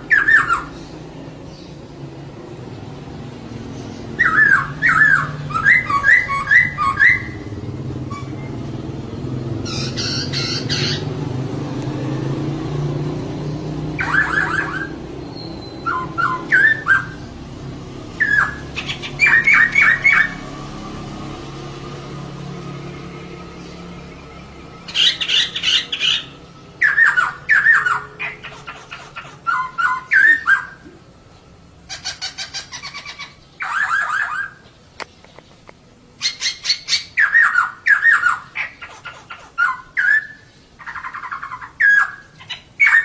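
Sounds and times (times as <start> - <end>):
harsh rasping bird call: 4.2 - 7.5, 9.6 - 11.2, 14.0 - 17.3, 18.2 - 20.5, 24.8 - 30.8, 31.9 - 34.6
bird calling falling notes: 4.2 - 8.8, 23.1 - 31.0.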